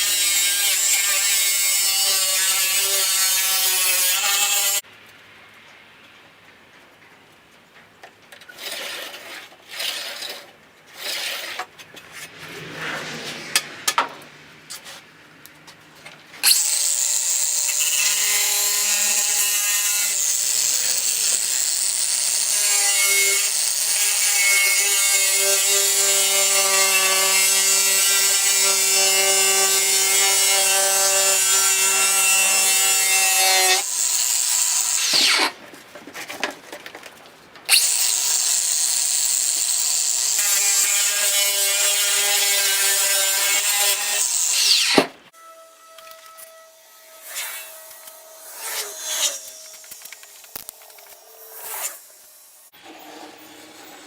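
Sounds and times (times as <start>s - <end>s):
knocks and handling sounds: 35.6s - 37.7s.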